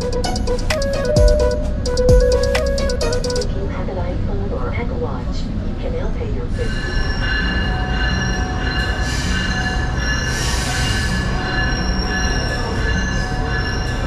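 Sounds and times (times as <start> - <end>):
train rumble: 0.0 - 14.0
wheels squealing on rails: 6.5 - 14.0.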